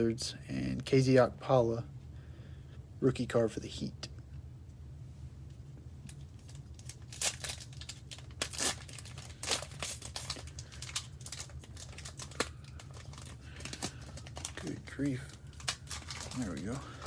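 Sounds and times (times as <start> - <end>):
plastic wrapper crinkling and tearing: 6.0 - 17.0.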